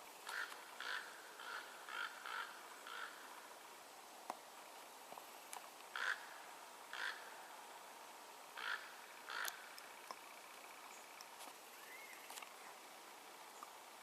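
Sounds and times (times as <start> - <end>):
crow cawing: 0.2 - 3.3, 5.9 - 7.3, 8.6 - 9.7
faint ticks: 9.3 - 12.6.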